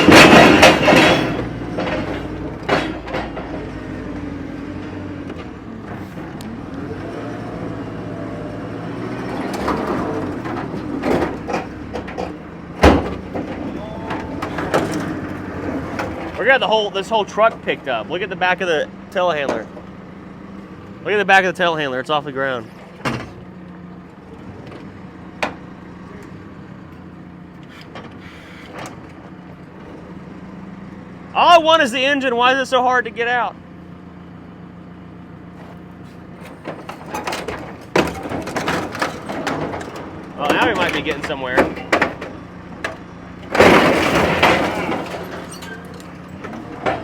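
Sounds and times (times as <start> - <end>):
metal clanks and knocks: 0.0 - 6.9, 9.0 - 18.3, 19.2 - 20.0, 22.7 - 27.1, 35.6 - 47.0
diesel engine under load: 0.0 - 47.0.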